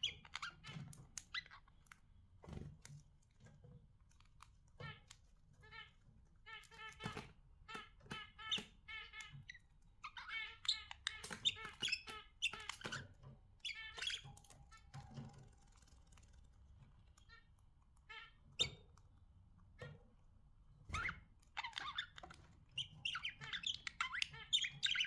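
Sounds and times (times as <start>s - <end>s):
budgerigars chirping and chattering: 0.0s - 2.0s, 4.8s - 15.3s, 17.0s - 19.3s, 20.9s - 25.0s.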